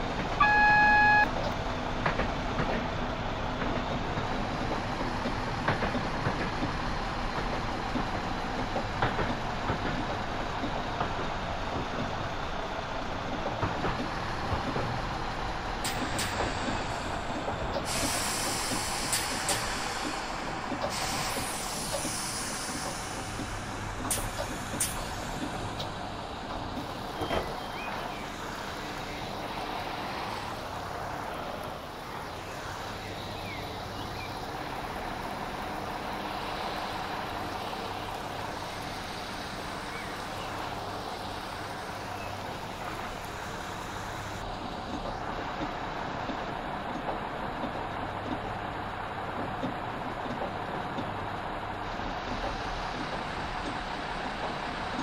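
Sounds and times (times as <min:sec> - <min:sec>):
diesel train rumble: 0:00.0 - 0:55.0
compressed air hiss: 0:17.9 - 0:25.2.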